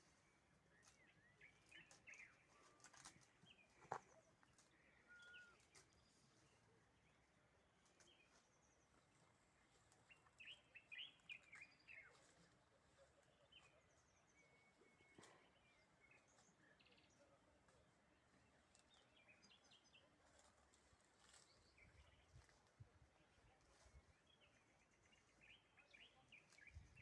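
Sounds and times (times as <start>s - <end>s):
faint bird chirps: 0.0s - 6.8s, 10.0s - 17.5s.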